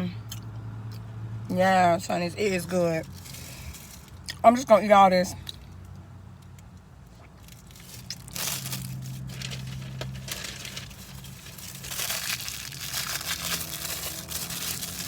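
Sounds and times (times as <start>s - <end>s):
food packaging crinkling and tearing: 7.4s - 15.0s.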